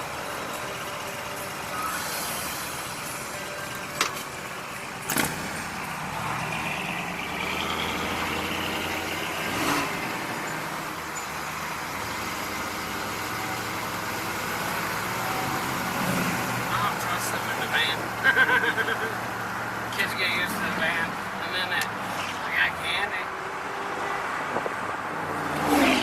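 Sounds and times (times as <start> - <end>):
vehicle engine running: 0.0 - 23.9
road and traffic noise: 0.0 - 26.0.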